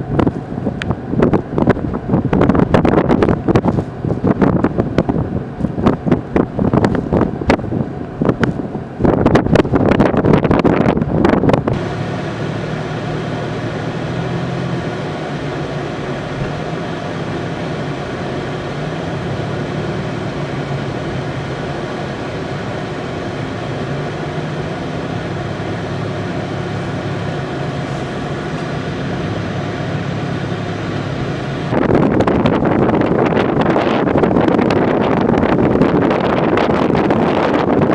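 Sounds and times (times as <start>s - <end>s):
engine humming: 0.0s - 37.9s
wind buffeting microphone: 0.0s - 37.9s.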